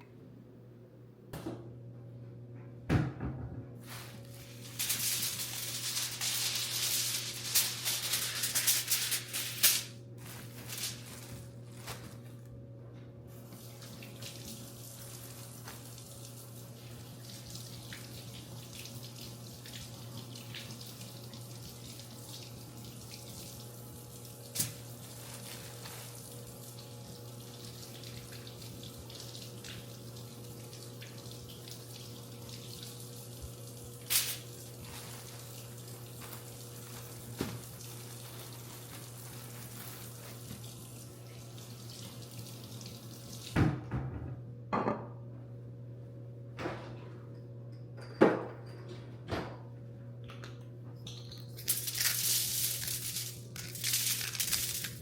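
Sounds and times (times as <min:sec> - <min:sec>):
tap water running into sink: 0:26.2 - 0:34.5
dishes clinking: 0:47.7 - 0:49.2.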